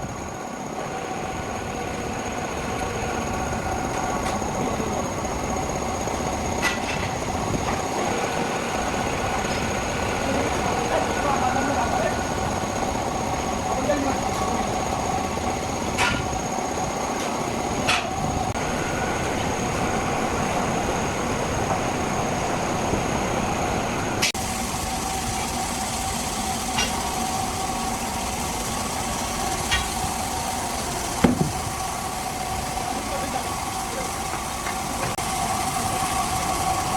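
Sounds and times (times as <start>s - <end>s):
heavy machinery whining: 0.0s - 36.9s
sharp metallic knocks: 31.2s - 31.7s.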